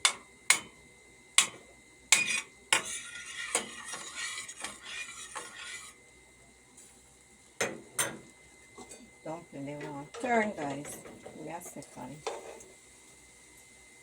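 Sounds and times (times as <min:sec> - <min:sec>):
spoon scraping and stirring in pot: 0:02.1 - 0:06.0, 0:12.2 - 0:12.8.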